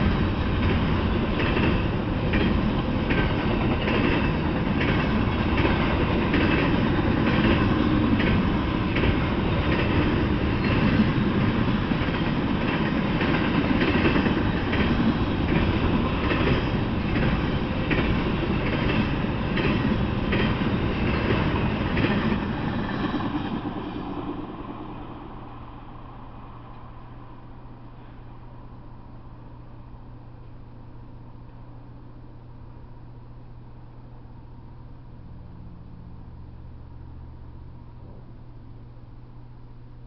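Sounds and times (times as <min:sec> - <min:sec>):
wheels clacking over track: 0:00.0 - 0:24.2.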